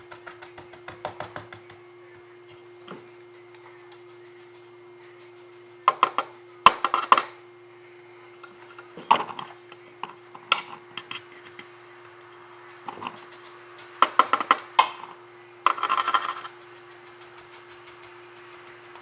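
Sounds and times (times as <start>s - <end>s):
faint steady hum: 0.0s - 19.0s
sharp taps and clinks: 12.7s - 19.0s.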